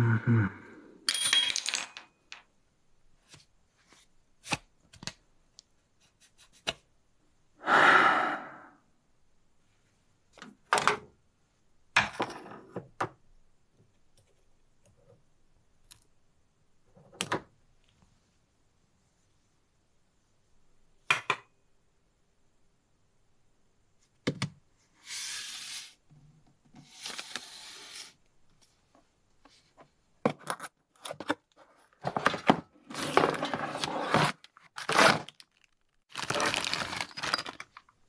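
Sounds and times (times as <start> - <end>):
scraping and rustling: 31.6 - 37.8.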